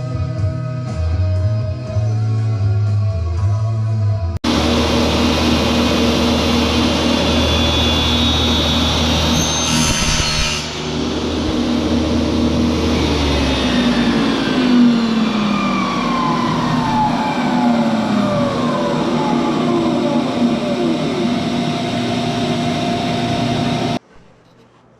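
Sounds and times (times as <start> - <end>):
power tool cutting hiss: 4.5 - 15.7
power tool motor running: 4.5 - 24.0.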